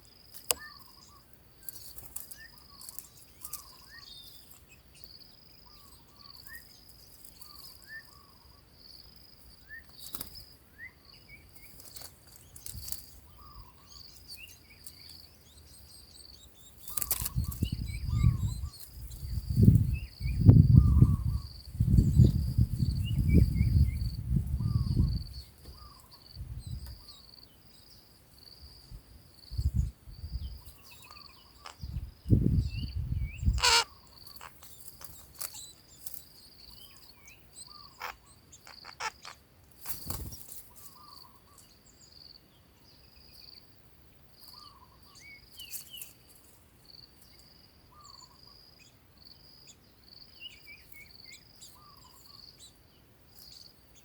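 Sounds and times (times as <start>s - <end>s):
insect trilling: 30.6s - 41.6s.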